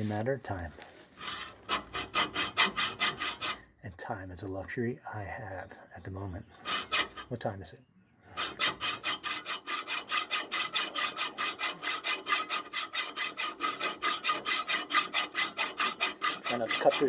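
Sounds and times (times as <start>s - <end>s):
hacksaw cutting steel: 1.2s - 3.6s, 6.6s - 7.4s, 8.3s - 17.0s.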